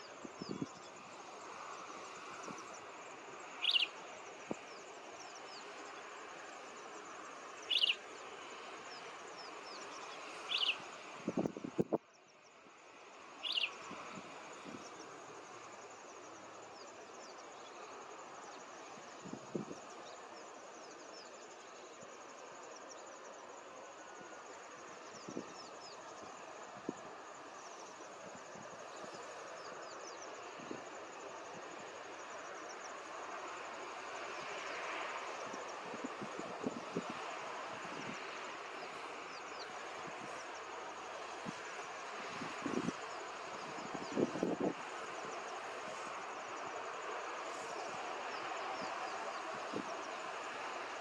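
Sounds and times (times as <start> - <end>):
background hiss: 0.0 - 51.0
sharp bird call: 3.6 - 3.9
faint high chirps: 3.6 - 4.0, 7.6 - 8.0, 10.0 - 10.9.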